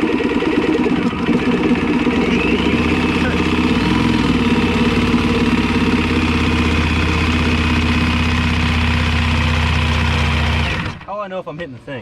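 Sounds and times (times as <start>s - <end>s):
power saw cutting: 0.0s - 11.0s.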